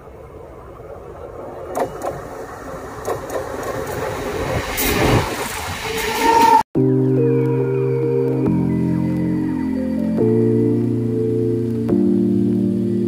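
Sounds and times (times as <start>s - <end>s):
wheels clacking on track: 0.0s - 6.6s
train approaching: 0.0s - 11.4s.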